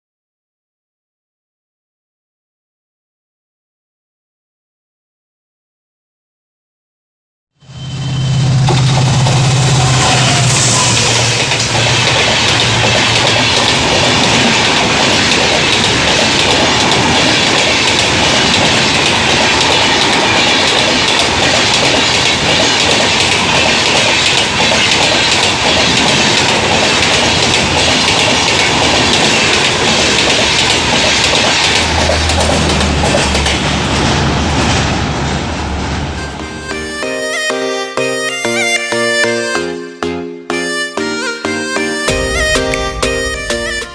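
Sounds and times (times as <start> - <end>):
train rushing past: 7.6 - 37.5, 41.8 - 43.9
wheels clattering over rail joints: 10.9 - 36.2.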